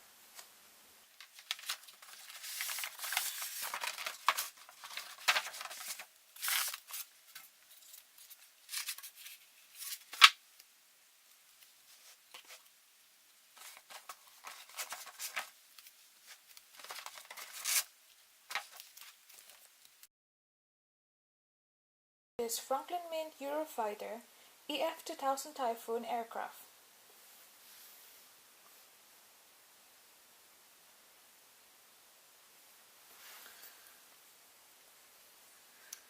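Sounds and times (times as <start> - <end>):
packaging rustling and tearing: 1.2 - 10.4, 13.6 - 19.9.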